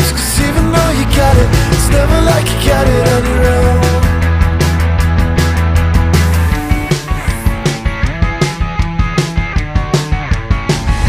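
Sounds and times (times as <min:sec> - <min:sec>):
rock music with guitar bass and drums: 0:00.0 - 0:11.0.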